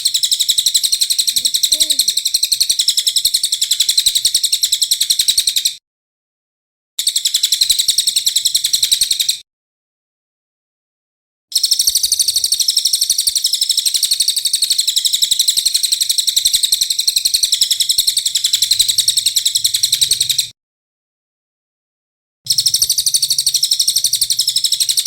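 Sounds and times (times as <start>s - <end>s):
songbird harsh rapid call: 0.4s - 2.6s.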